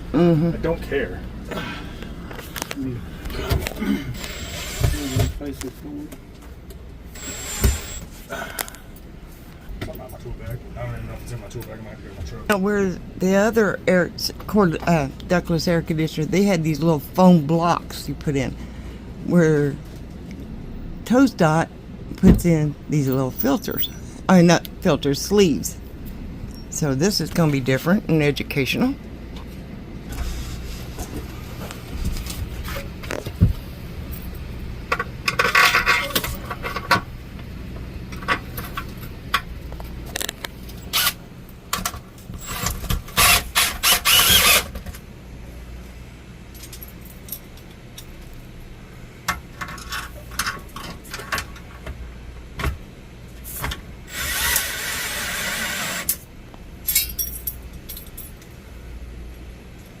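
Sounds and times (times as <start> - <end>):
low steady hum: 0.0 - 60.0
power drill running: 4.2 - 5.4, 7.1 - 8.1, 43.2 - 44.7, 54.1 - 56.1
hand tools clinking and knocking: 56.9 - 58.4.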